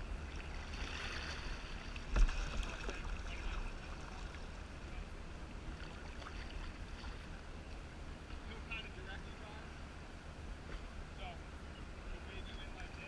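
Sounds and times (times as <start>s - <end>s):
water splashing around kayak: 0.0s - 8.6s
low steady rumble: 0.0s - 13.0s.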